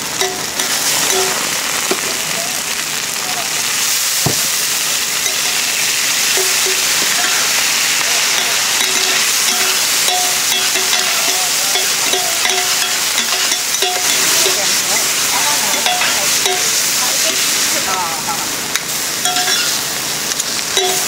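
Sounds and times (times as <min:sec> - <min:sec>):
food sizzling on a griddle: 0:00.0 - 0:21.0
knock: 0:04.2 - 0:04.5.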